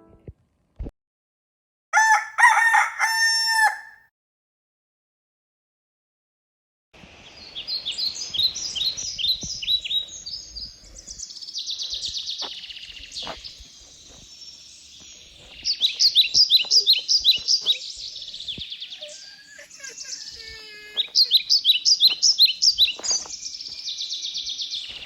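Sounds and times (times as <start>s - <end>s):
songbirds chirping: 7.0s - 25.0s.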